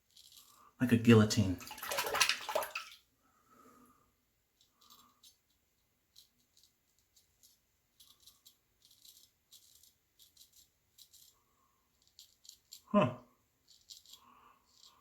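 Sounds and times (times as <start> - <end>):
razor scraping stubble: 6.1 - 12.9, 13.6 - 15.0.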